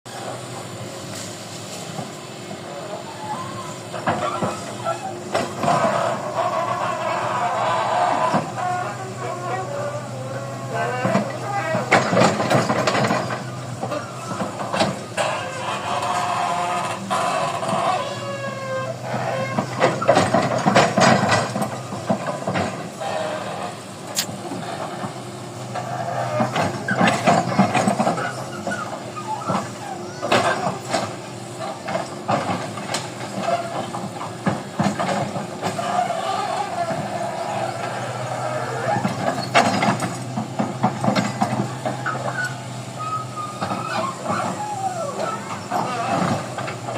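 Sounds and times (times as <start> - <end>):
diesel engine running: 0.1 - 46.9
heavy construction machine hissing: 0.1 - 46.9
whining squeal: 2.6 - 21.1, 25.6 - 31.8, 35.6 - 39.8, 41.2 - 46.9.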